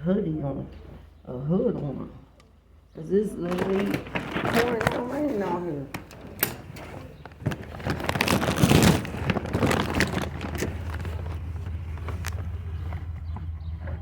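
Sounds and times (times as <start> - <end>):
vehicle engine humming: 9.0 - 14.0.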